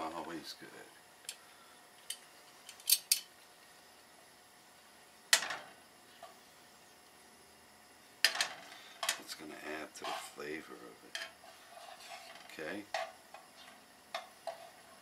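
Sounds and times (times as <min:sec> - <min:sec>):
tongs scraping a frying pan: 0:10.0 - 0:10.4, 0:11.2 - 0:13.7.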